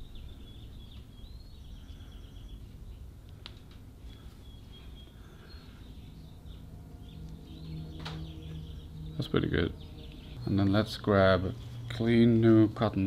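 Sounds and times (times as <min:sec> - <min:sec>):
birds chirping: 0:00.0 - 0:13.0
low background rumble: 0:00.0 - 0:13.0.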